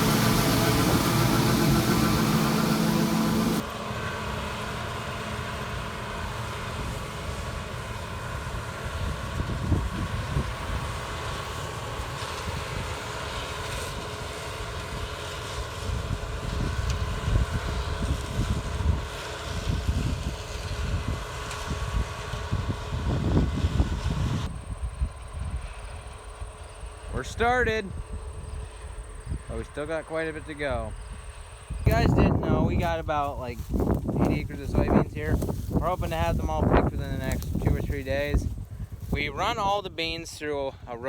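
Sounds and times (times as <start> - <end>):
closer engine cutting off: 0.0 - 10.7
distant machinery engine running: 0.0 - 27.2
wind rumbling on microphone: 8.5 - 11.1, 15.8 - 25.8, 30.8 - 40.3.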